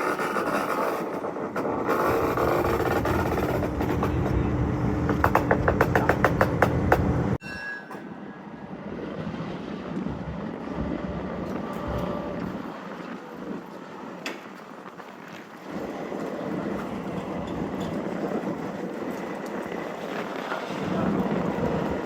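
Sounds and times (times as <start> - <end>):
train rumbling on track: 0.0 - 7.4
wheels clicking over rails: 0.0 - 8.1
wind-like noise: 8.0 - 22.0.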